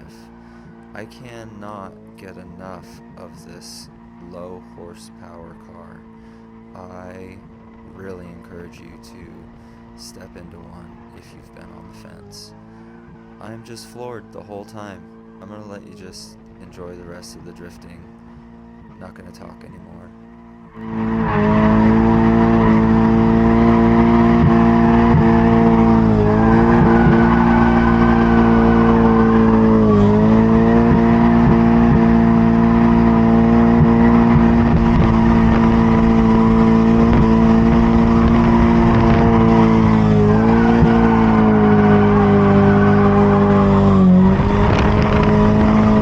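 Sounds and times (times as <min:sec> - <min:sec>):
car engine at high revs: 0:00.0 - 0:46.0
tyres squealing: 0:26.1 - 0:30.3.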